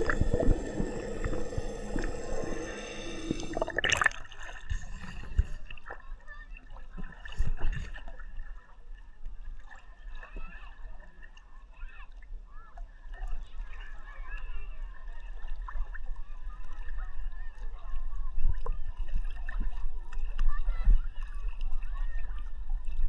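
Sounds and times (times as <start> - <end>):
sea water sloshing and lapping: 0.0 - 5.4.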